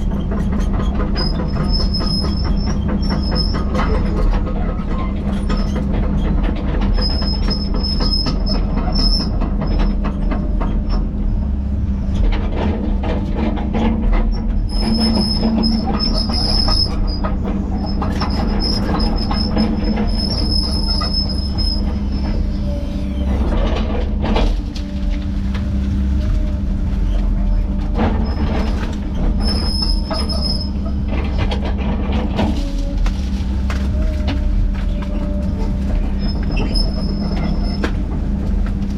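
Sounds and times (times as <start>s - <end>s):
diesel machinery drone: 0.0s - 38.9s
high squeal: 14.7s - 23.4s, 29.1s - 31.0s, 33.9s - 37.9s.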